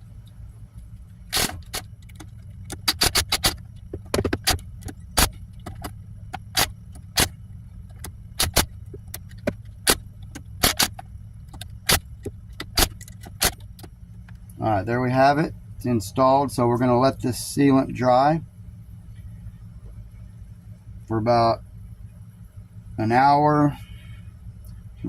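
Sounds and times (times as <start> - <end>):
steady low hum: 0.0 - 25.0
hand tool clicking on screws: 1.4 - 7.3, 7.9 - 12.0.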